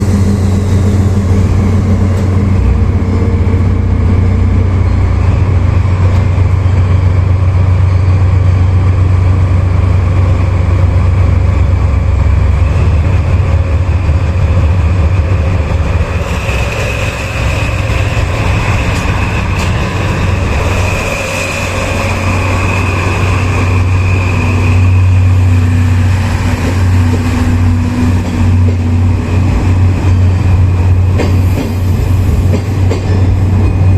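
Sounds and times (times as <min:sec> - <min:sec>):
diesel locomotive engine droning: 0:00.0 - 0:33.9.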